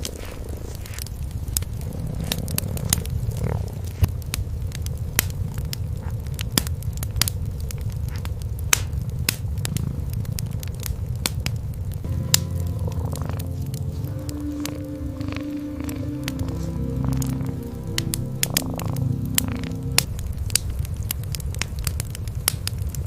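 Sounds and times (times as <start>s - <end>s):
cats purring: 0.0s - 6.4s, 9.0s - 11.2s, 12.1s - 20.1s
wood fire crackling and popping: 0.0s - 23.0s.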